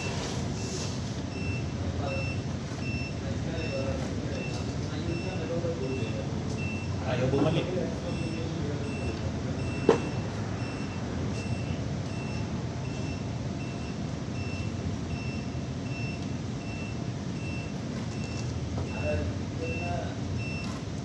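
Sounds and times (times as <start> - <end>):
reversing alarm beeping: 0.0 - 20.9.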